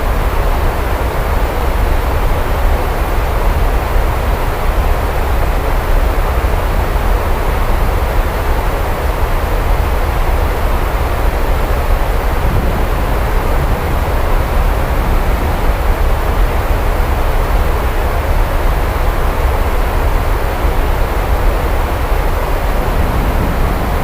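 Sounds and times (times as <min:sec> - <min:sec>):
heavy rain: 0:00.0 - 0:24.0
deep rumble: 0:10.9 - 0:24.0.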